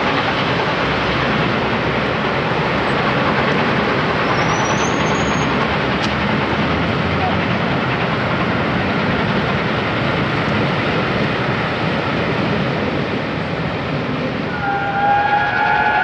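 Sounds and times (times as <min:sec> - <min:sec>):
train wheels rumbling on rail: 0:00.0 - 0:16.0
train whistle: 0:14.5 - 0:16.0.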